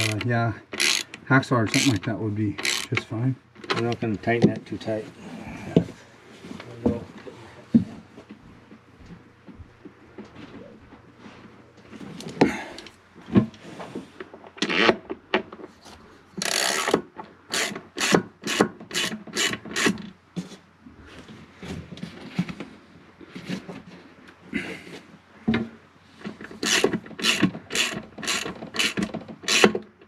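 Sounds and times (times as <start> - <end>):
hacksaw cutting metal bolt: 0.0 - 0.2, 0.8 - 1.1, 1.7 - 2.0, 2.6 - 3.0, 16.4 - 20.0, 26.6 - 29.8.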